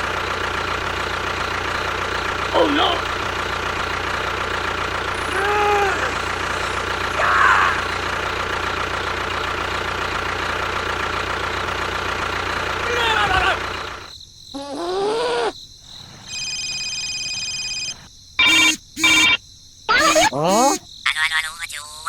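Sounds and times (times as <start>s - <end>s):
motor running: 2.4s - 8.9s, 18.4s - 20.8s
multi-tone electronic beep: 18.4s - 19.4s
short voice-like sound: 19.9s - 20.9s.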